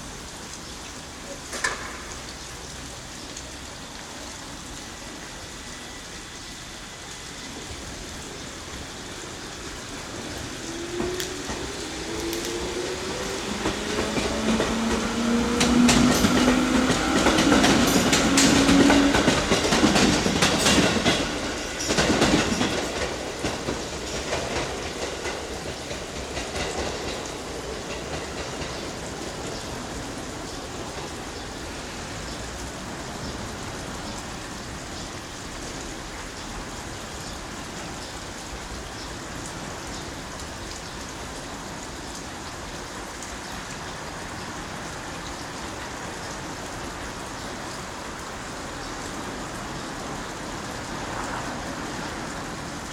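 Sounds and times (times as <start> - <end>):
railcar running whine: 0.0 - 52.9
rain hiss: 0.0 - 52.9
wheels clicking over rail joints: 10.0 - 31.6.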